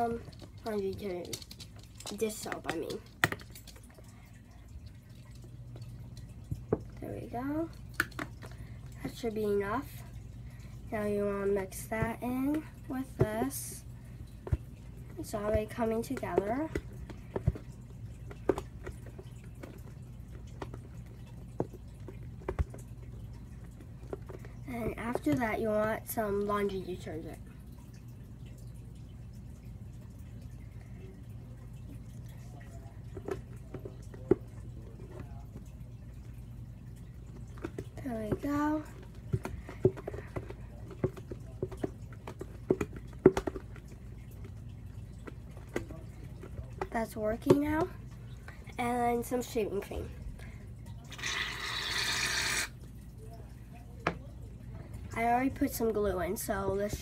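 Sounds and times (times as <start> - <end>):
faint low hum: 0.0 - 52.0, 52.6 - 57.0
wet squelches of stirring: 0.0 - 57.0
slime stirred in a bucket: 37.2 - 50.1, 50.9 - 53.0.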